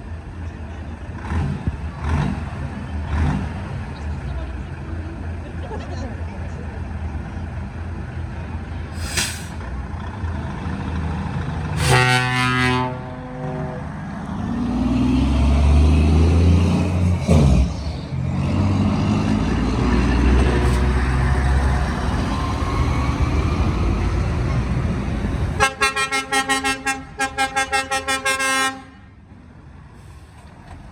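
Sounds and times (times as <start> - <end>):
truck engines rumbling: 0.0 - 30.9
air hiss bursts: 9.0 - 9.6
truck air horn: 11.8 - 14.0, 25.6 - 29.2.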